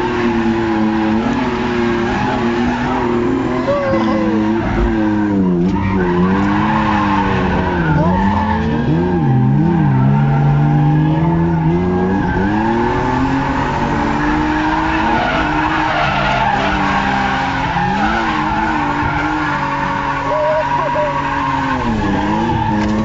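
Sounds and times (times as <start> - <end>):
car engines revving: 0.0 - 23.0
tyres squealing and skidding: 0.0 - 23.0.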